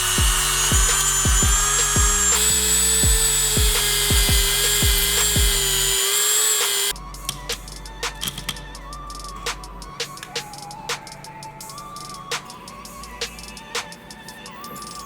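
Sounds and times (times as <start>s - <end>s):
rotary tool running: 0.0s - 7.0s
background music with beat: 0.0s - 15.0s.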